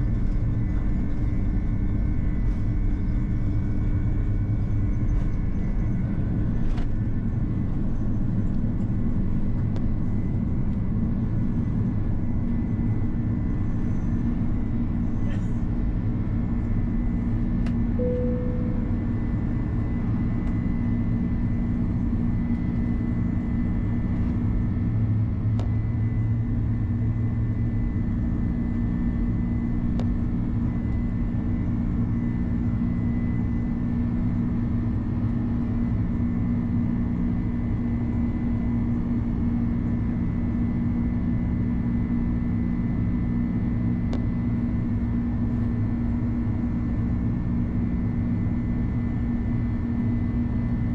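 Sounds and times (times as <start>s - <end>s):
constant cabin hum: 0.0s - 50.9s
jet engines and airflow rumble: 0.0s - 50.9s
short single tone: 18.0s - 20.1s.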